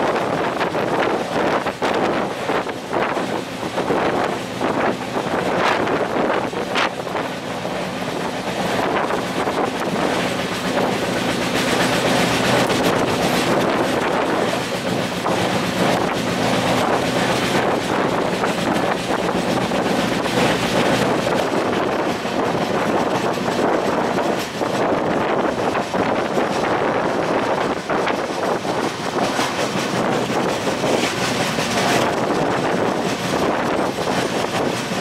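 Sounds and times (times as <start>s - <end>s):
wheel-on-rail and wind rush: 0.0s - 35.0s
train wheels clattering: 0.1s - 35.0s.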